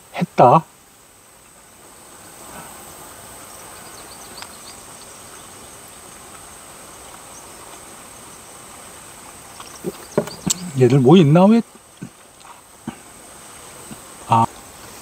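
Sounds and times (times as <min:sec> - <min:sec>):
high insect drone: 0:00.0 - 0:15.0
soft rush of noise: 0:00.0 - 0:15.0
faint clicks: 0:04.3 - 0:04.8.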